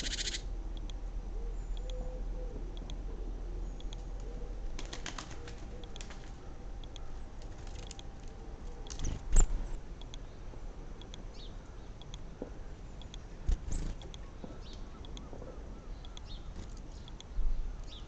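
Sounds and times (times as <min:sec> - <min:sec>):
small birds chirping: 0:00.0 - 0:00.9, 0:08.8 - 0:18.0
pigeons cooing: 0:01.3 - 0:07.2.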